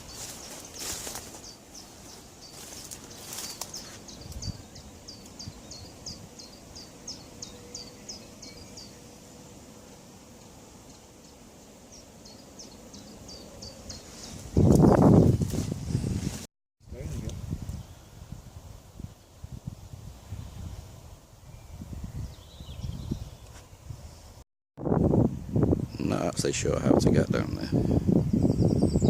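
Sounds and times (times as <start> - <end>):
songbird calling: 0.0 - 9.0, 10.4 - 15.0, 28.3 - 29.0.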